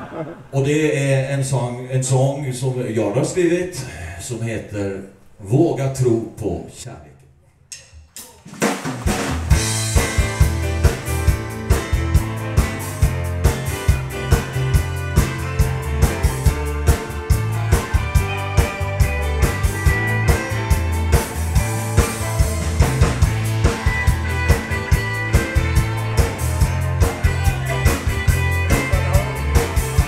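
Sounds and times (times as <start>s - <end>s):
drum hits: 8.1s - 30.0s
live band playing upbeat song: 8.6s - 30.0s.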